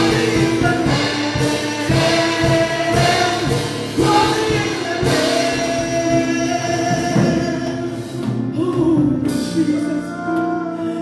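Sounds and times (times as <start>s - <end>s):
group singing: 0.0s - 8.1s
band accompaniment: 0.0s - 11.0s.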